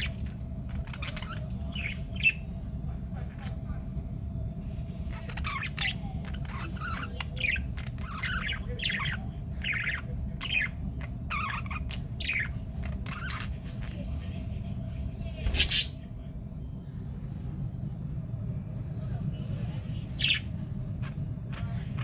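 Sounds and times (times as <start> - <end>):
budgies chirping and squawking: 0.0 - 2.6, 5.0 - 14.4, 15.4 - 16.0, 20.1 - 22.0
steady low hum: 0.0 - 22.0.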